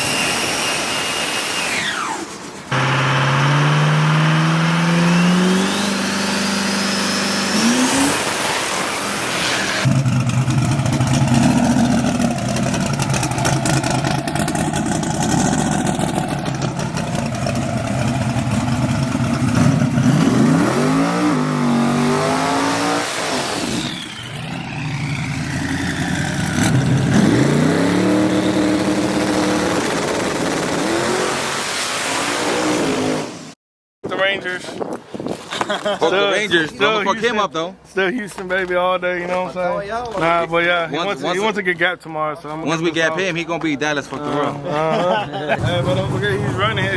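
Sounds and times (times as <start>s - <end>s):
falling whine: 0.0s - 32.8s
car engine revving: 2.7s - 33.4s.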